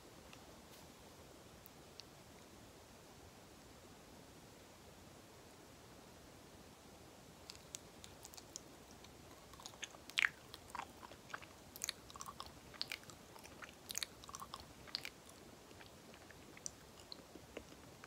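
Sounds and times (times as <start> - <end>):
mouth chewing soft food: 7.4 - 18.0.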